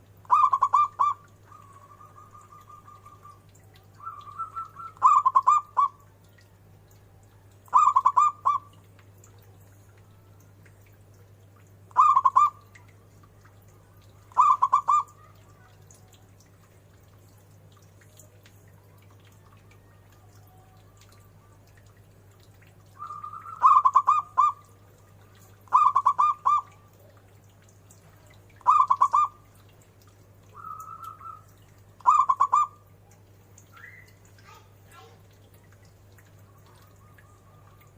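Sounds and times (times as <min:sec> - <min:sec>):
dove cooing: 0:00.2 - 0:06.0, 0:07.7 - 0:08.8, 0:11.9 - 0:12.7, 0:14.2 - 0:15.9, 0:22.9 - 0:24.7, 0:25.5 - 0:27.2, 0:28.6 - 0:29.4, 0:30.5 - 0:32.8.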